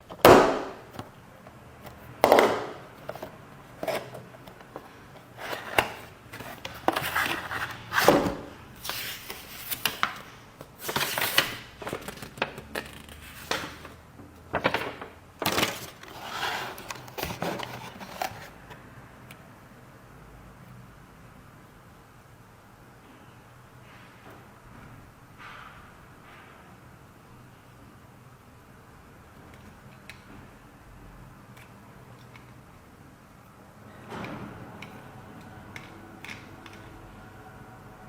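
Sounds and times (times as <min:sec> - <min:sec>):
packaging rustling and clicking: 0:01.8 - 0:18.8.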